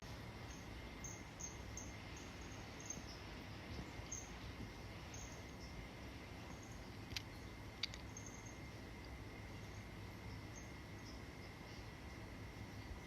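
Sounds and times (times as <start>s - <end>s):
faint hiss: 0.0s - 13.0s
short faint clicks: 7.1s - 8.2s.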